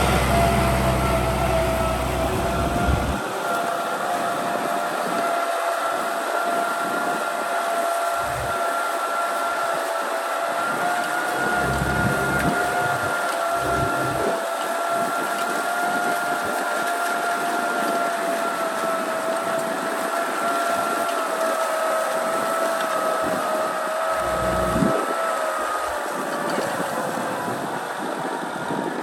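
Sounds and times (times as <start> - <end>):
low rumbles: 0.0 - 3.2, 8.2 - 8.5, 11.3 - 14.4, 24.2 - 25.0
tractor diesel engine running: 0.0 - 3.5, 8.2 - 8.6, 11.0 - 14.5, 24.0 - 25.1
high whine: 8.2 - 8.6, 11.2 - 14.4, 24.2 - 25.1.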